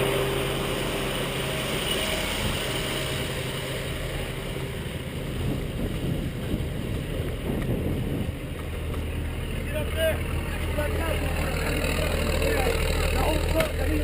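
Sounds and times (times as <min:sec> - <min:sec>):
truck engine running: 0:00.0 - 0:14.0
wind buffeting microphone: 0:04.3 - 0:09.6.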